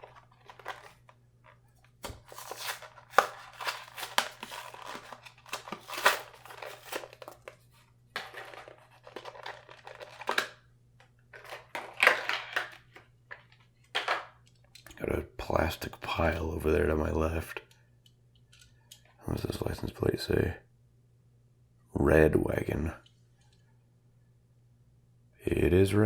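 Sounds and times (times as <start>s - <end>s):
card tearing: 0.0s - 1.1s, 2.0s - 7.6s, 8.2s - 10.6s
stiff plastic crinkling: 0.0s - 10.6s.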